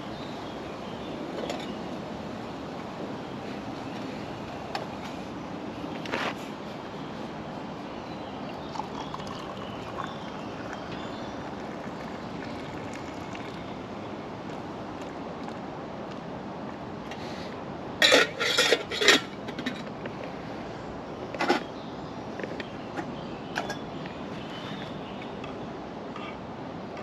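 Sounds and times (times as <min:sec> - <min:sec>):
steady outdoor hiss: 0:00.0 - 0:27.0
pots and utensils clattering: 0:18.0 - 0:19.9.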